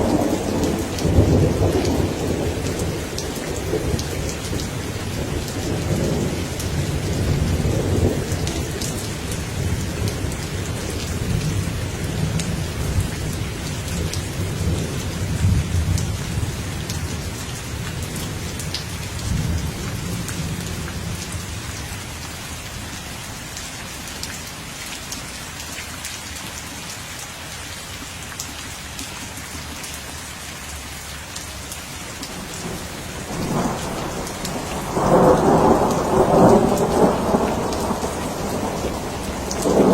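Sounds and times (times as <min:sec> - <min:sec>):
steady rain falling: 0:00.0 - 0:39.9
raindrops ticking: 0:23.5 - 0:39.9
rolling thunder: 0:32.4 - 0:39.9.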